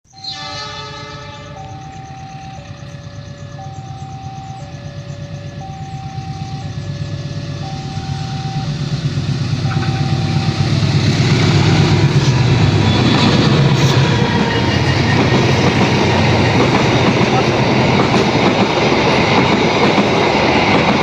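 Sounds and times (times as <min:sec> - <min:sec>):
diesel locomotive engine rumble: 0:00.1 - 0:21.0
two-tone warning alarm: 0:00.1 - 0:21.0.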